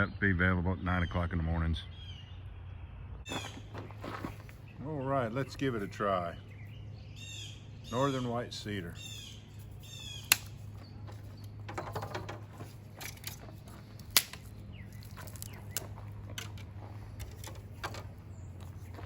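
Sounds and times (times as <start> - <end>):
low steady hum: 0.0 - 19.0
dry twigs snapping: 9.6 - 11.6, 13.0 - 17.5.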